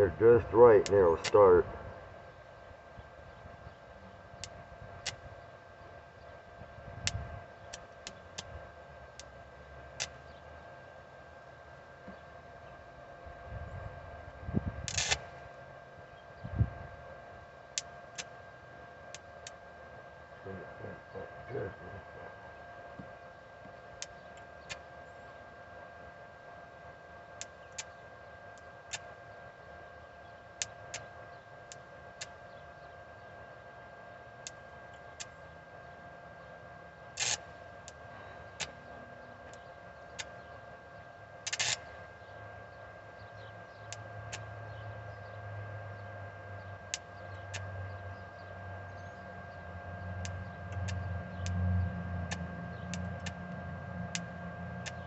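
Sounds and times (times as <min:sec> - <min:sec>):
faint steady whine: 0:00.0 - 0:55.0
welding electrode clicks: 0:04.4 - 0:05.2, 0:09.9 - 0:10.2, 0:14.8 - 0:15.3, 0:37.2 - 0:38.0, 0:41.4 - 0:41.8, 0:50.2 - 0:51.6, 0:52.3 - 0:53.5, 0:54.1 - 0:55.0.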